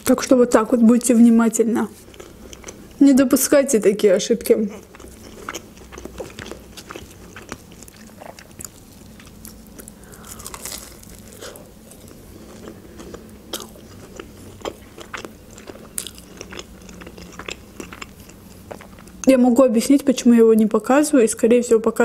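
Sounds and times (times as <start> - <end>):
chewing crunchy chicken nugget: 2.0 - 3.0, 4.5 - 19.3.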